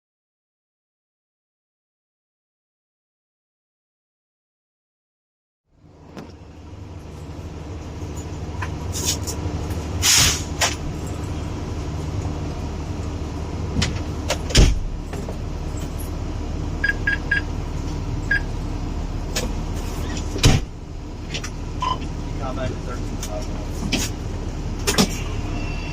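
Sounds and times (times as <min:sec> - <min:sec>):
fire engine rumble: 0:05.7 - 0:25.9
burst of hissing: 0:10.0 - 0:10.5.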